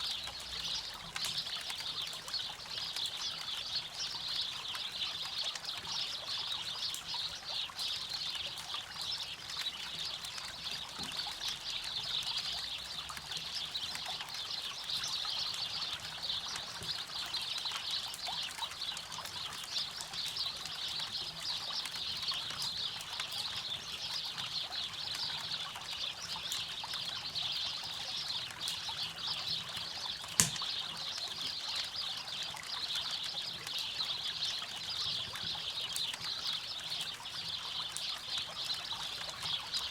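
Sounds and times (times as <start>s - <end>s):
campfire crackling: 27.8s - 33.8s
sharp loud pop: 30.4s - 30.6s.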